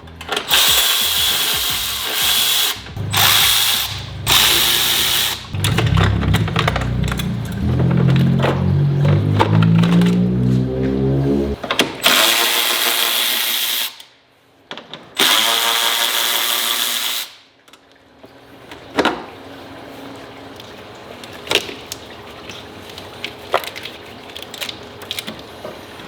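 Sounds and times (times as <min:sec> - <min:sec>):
handheld power tool running: 0:00.3 - 0:07.2.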